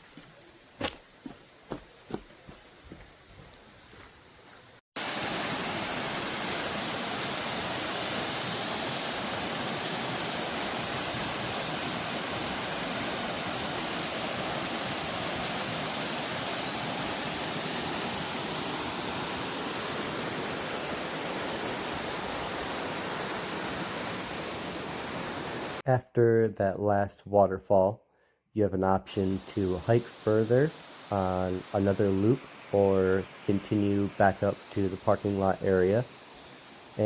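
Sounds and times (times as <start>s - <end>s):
waterfall rushing: 5.0s - 25.8s, 29.2s - 37.0s.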